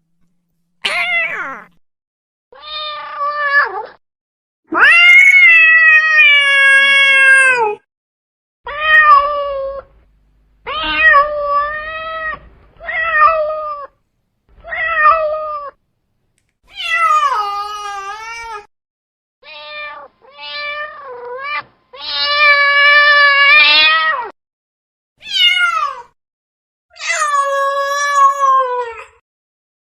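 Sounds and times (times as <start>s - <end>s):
cat meowing: 0.8s - 1.8s, 4.7s - 7.8s, 8.7s - 9.9s, 10.7s - 14.0s, 19.4s - 24.3s, 25.2s - 26.1s.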